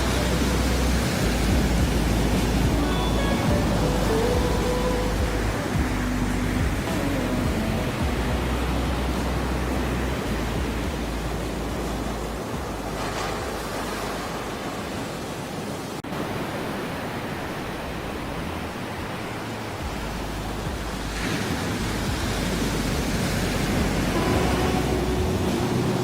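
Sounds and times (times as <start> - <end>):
ocean waves rushing: 0.0 - 26.0.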